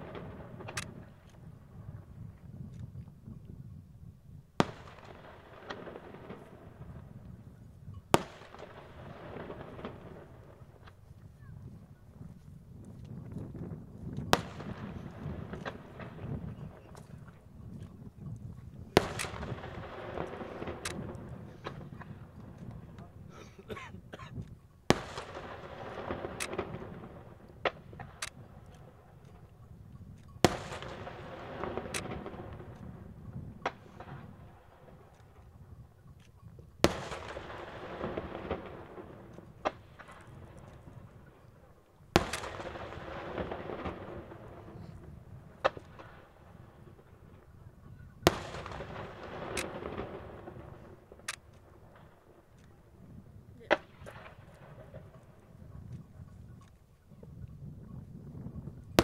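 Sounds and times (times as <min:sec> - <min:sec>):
firework shells booming: 0:00.0 - 0:02.4, 0:04.4 - 0:35.7, 0:36.6 - 0:55.6
firework cracks: 0:04.6 - 0:07.4, 0:08.1 - 0:11.2, 0:12.8 - 0:17.4, 0:19.0 - 0:23.3, 0:24.9 - 0:29.6, 0:30.4 - 0:35.4, 0:36.8 - 0:41.4, 0:42.1 - 0:47.5, 0:48.2 - 0:52.8.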